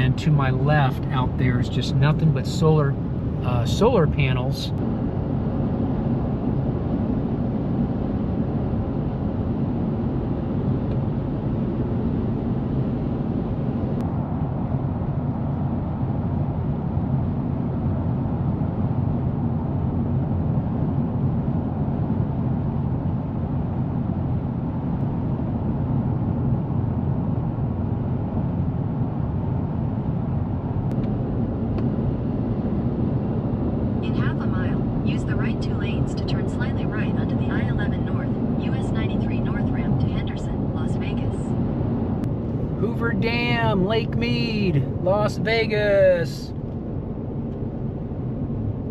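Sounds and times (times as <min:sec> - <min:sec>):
car engine rumble: 0:00.0 - 0:48.9.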